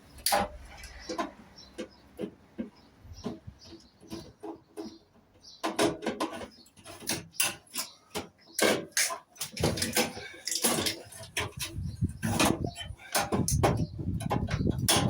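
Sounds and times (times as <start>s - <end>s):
metal tools clinking and scraping: 5.6s - 15.0s.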